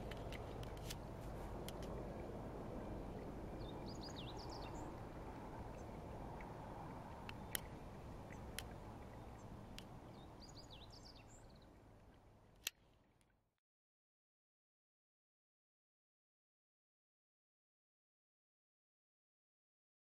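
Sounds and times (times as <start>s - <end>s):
outdoor background noise: 0.0s - 13.6s.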